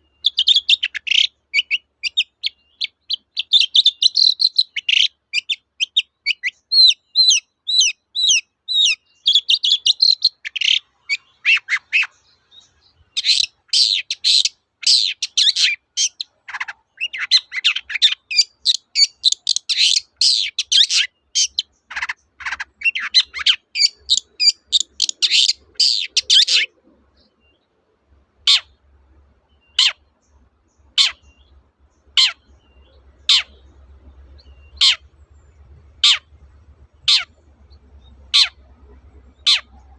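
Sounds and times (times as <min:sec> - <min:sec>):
bird chattering song: 0:00.0 - 0:27.8, 0:28.4 - 0:39.9
sharp downslurred bird notes: 0:30.8 - 0:35.1.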